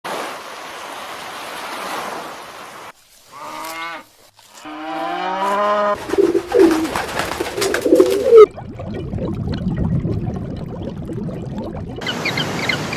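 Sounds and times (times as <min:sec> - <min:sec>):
pigeons cooing: 0:05.9 - 0:08.5.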